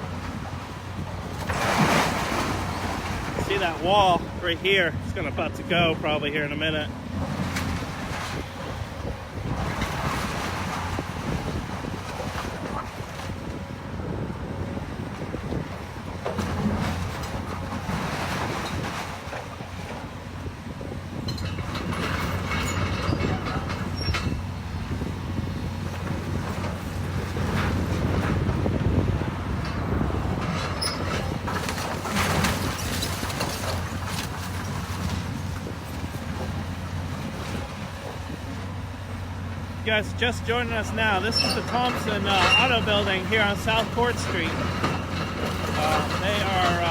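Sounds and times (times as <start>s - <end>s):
wind buffeting microphone: 0.0s - 39.9s
demolition machine engine running: 0.0s - 46.9s
debris knocking and crunching: 29.6s - 38.3s
bricks and debris crunching: 30.4s - 36.4s, 40.8s - 46.9s.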